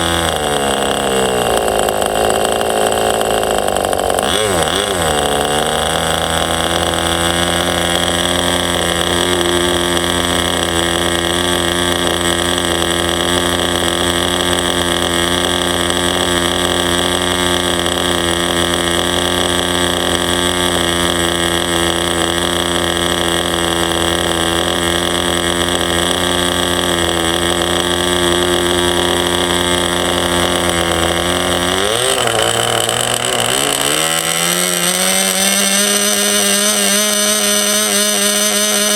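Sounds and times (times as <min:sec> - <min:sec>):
model glow engine running: 0:00.0 - 0:38.9.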